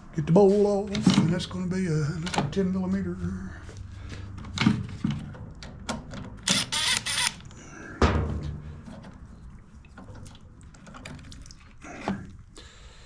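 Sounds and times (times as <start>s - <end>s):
solid metal clunk: 8.0s - 8.8s.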